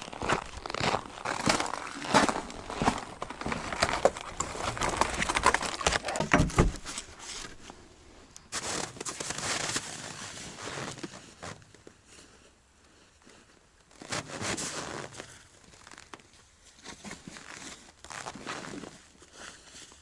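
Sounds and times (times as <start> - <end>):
crinkling and crackling: 0.0 - 20.0.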